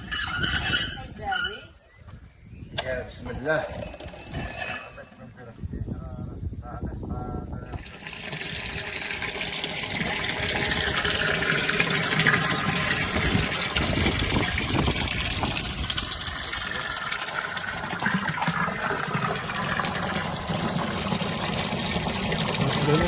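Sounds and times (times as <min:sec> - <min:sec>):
water gushing and splashing: 0:07.7 - 0:23.0.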